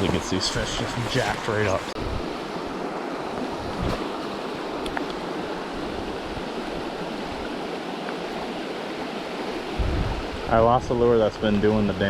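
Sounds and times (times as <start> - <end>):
river current rushing: 0.0 - 12.0.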